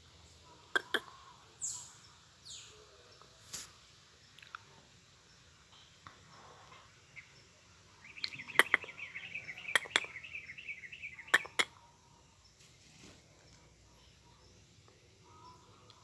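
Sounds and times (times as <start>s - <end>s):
sharp clicks: 0.8s - 1.0s, 8.6s - 8.9s, 9.8s - 10.1s, 11.4s - 11.7s
bird chattering call: 0.8s - 1.8s, 8.1s - 11.8s.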